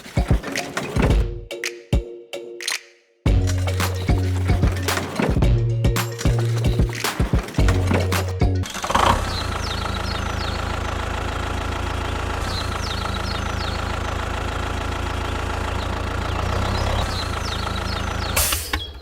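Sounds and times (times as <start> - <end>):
diesel engine idling: 7.6 - 18.6.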